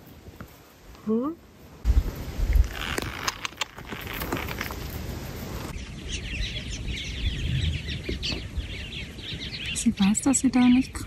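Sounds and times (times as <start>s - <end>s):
small birds chirping: 3.8s - 11.0s.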